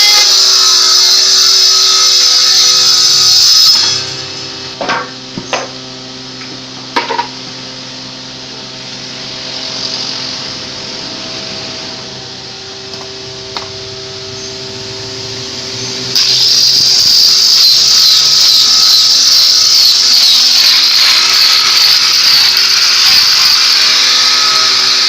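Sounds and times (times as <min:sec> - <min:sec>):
power tool running: 0:00.0 - 0:25.0
steady hum: 0:03.8 - 0:20.1.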